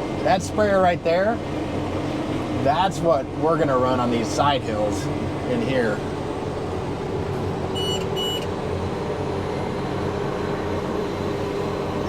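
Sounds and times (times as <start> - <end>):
diesel engine running: 0.0 - 12.0
short electronic beeps: 7.7 - 8.5.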